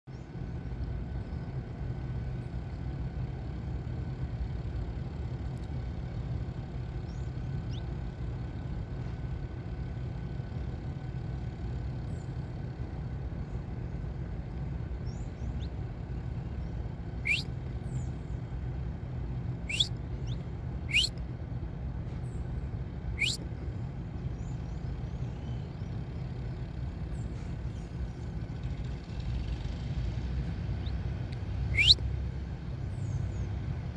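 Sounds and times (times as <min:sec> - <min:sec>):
finches chirping: 0:16.6 - 0:17.5, 0:19.7 - 0:21.1, 0:23.2 - 0:23.4, 0:31.8 - 0:32.0
upward-sweeping bird calls: 0:17.2 - 0:17.5, 0:19.7 - 0:21.1, 0:23.2 - 0:23.4, 0:31.7 - 0:32.0.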